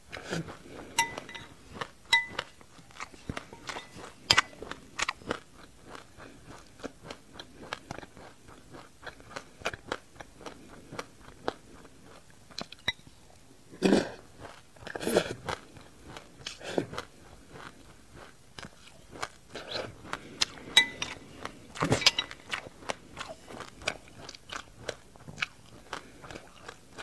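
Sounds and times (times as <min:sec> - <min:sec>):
crisp chewing crunches: 0:00.1 - 0:13.1, 0:13.8 - 0:27.0
metal spoon clinking on glass bowl: 0:01.0 - 0:02.5, 0:03.6 - 0:04.5, 0:20.8 - 0:21.2, 0:22.0 - 0:22.4.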